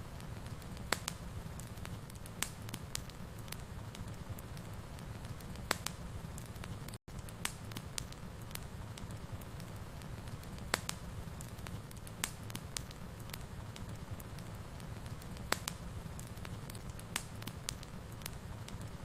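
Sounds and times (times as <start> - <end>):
wood fire burning in a fireplace: 0.0 - 19.0.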